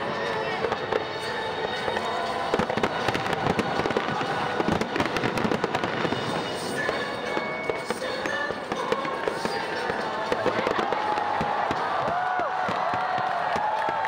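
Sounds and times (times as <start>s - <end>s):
fireworks bursting and crackling: 0.0s - 14.0s.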